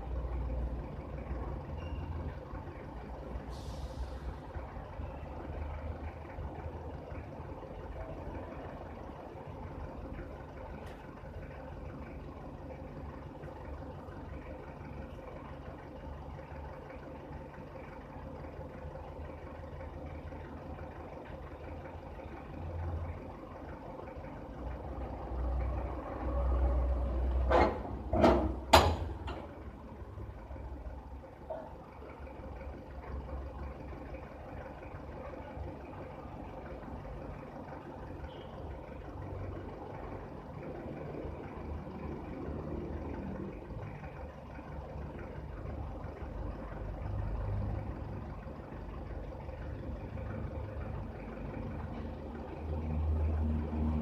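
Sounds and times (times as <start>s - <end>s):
engine low rumble: 0.0s - 54.0s
loud sharp knocks: 27.5s - 29.2s.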